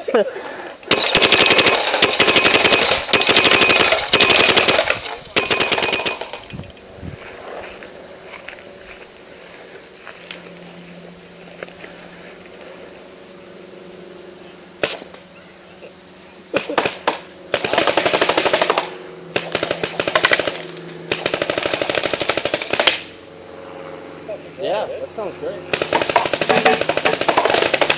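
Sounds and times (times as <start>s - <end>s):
paintball marker shots: 14.8s - 15.2s, 16.5s - 23.1s, 25.7s - 27.9s.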